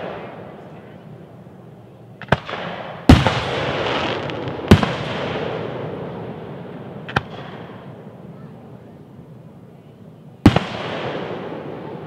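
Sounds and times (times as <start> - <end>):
fireworks bursting: 0.0 - 1.0, 2.1 - 8.7, 10.4 - 12.0
echo of fireworks bang: 2.2 - 8.3, 10.4 - 12.0.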